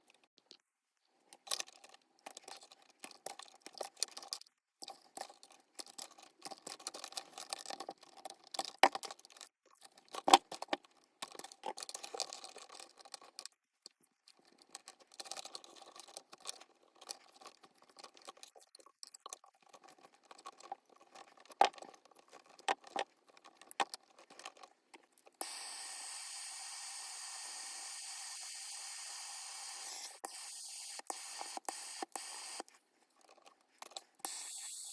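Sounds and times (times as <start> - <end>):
steady hiss: 25.4 - 32.6, 34.2 - 34.9
hands handling wire and tools: 31.1 - 34.9.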